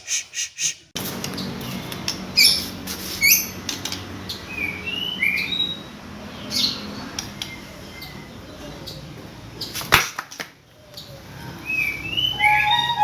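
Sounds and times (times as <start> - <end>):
bird chirping: 0.0 - 10.0, 10.7 - 13.0
whistled bird notes: 11.0 - 13.0.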